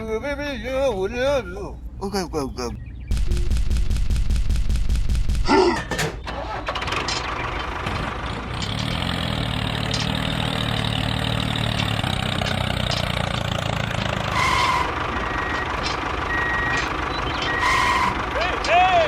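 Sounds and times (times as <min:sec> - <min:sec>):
reversing beeper: 0:14.3 - 0:18.2.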